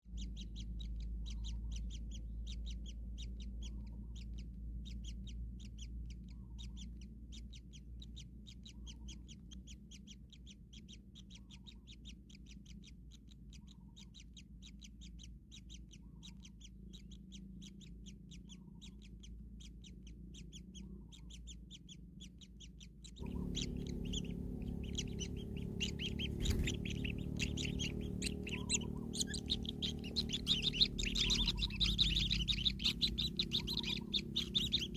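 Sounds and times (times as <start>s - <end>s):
chicks chirping: 0.1s - 34.9s
low hum: 14.5s - 34.9s.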